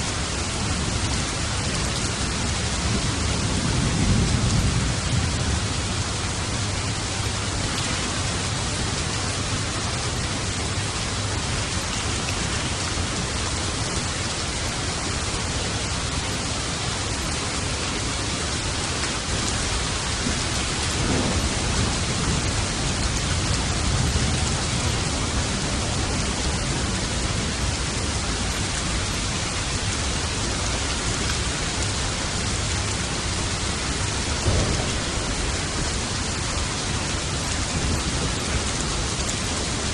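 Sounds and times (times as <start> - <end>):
heavy rain: 0.0 - 39.9
distant thunder rolling: 19.4 - 28.7, 34.0 - 39.2.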